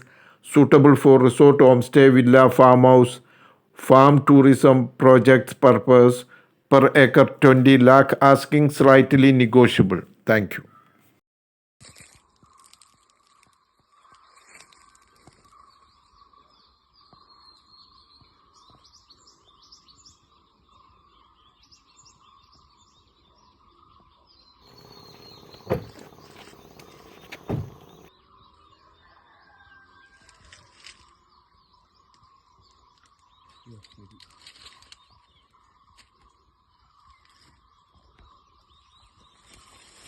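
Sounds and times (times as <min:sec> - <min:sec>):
birds chirping: 0:15.5 - 0:29.6
faint drone: 0:24.7 - 0:28.1
sharp knocks: 0:24.7 - 0:28.1.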